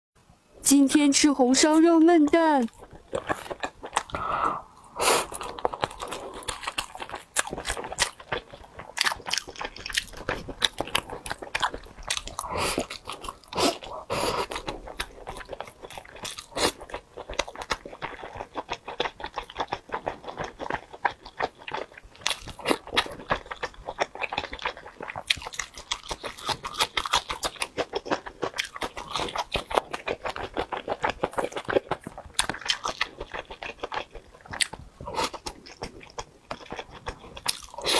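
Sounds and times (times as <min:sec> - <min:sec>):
chewing and mouth smacks: 0:02.6 - 0:37.9.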